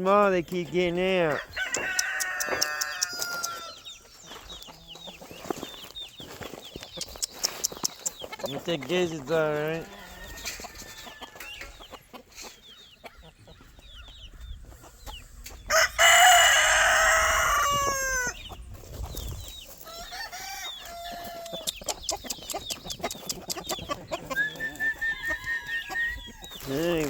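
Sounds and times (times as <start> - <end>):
hens clucking: 0.0 - 27.0
rooster crowing: 1.3 - 3.8, 9.8 - 11.4, 15.7 - 18.4, 19.8 - 21.6.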